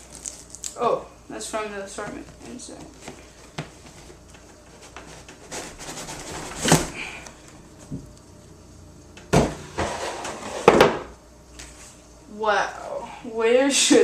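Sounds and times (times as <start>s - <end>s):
cardboard box rustling and scraping: 3.9s - 7.0s, 9.8s - 10.8s.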